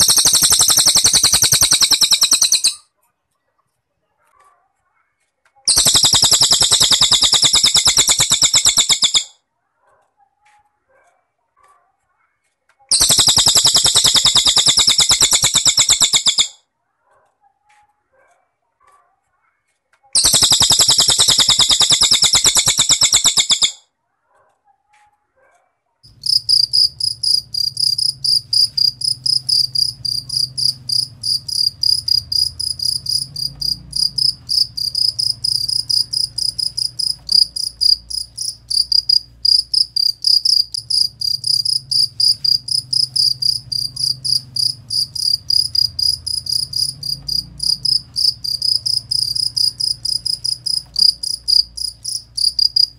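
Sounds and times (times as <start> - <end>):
bird buzzy trill: 0.0 - 2.8, 5.7 - 9.3, 12.9 - 16.6, 20.2 - 23.8, 26.1 - 52.9
cricket chirping: 0.0 - 2.8, 5.7 - 9.3, 12.9 - 16.5, 20.2 - 23.8, 26.1 - 52.9
faint low hum: 26.1 - 52.9.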